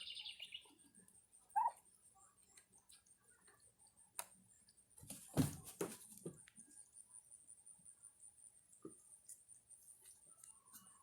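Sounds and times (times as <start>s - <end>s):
bird trill: 0.0s - 0.8s, 1.5s - 1.8s.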